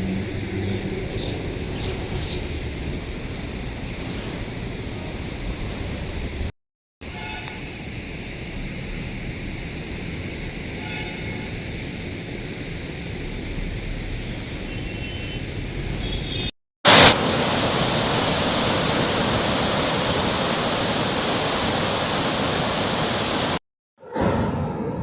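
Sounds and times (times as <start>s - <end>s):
floodwater rushing: 16.9s - 23.6s.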